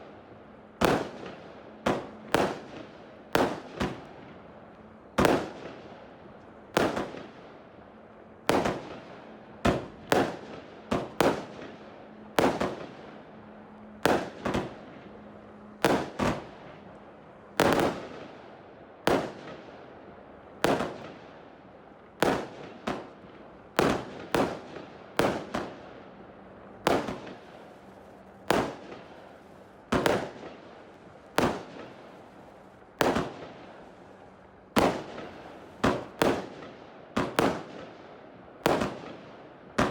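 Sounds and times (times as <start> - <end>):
firework bangs with echo: 28.4 - 30.6, 31.3 - 32.3, 33.0 - 33.8.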